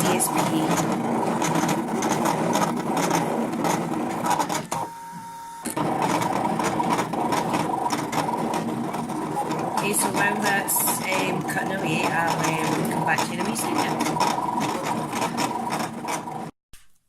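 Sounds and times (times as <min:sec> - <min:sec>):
stepper motors whirring: 0:00.0 - 0:16.5.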